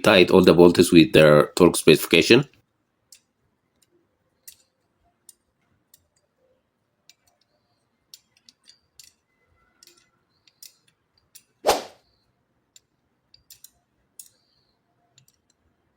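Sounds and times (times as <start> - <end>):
faint clicks and taps: 7.0 - 11.5, 12.7 - 15.7.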